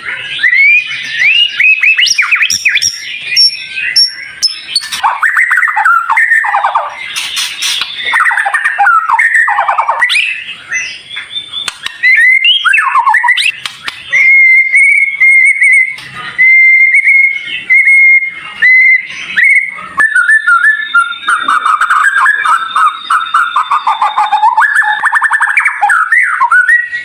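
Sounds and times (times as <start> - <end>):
songbird singing whistled notes: 0.0 - 27.0.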